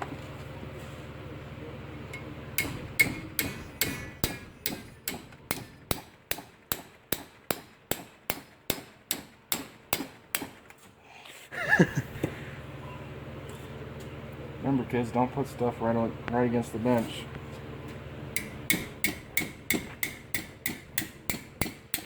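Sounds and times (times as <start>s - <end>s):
steady low hum: 0.0s - 22.0s
hammer blows on metal: 2.6s - 10.5s.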